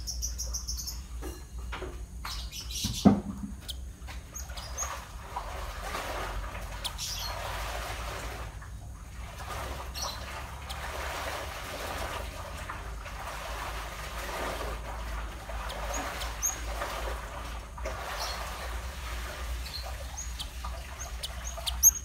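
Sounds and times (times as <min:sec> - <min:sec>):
sparrows chattering and twittering: 0:00.0 - 0:01.3, 0:02.2 - 0:06.0, 0:06.6 - 0:08.4, 0:09.4 - 0:12.1, 0:15.0 - 0:17.2, 0:17.9 - 0:22.0
steady low hum: 0:00.0 - 0:22.0
high bird chirps: 0:15.6 - 0:16.7, 0:19.6 - 0:22.0.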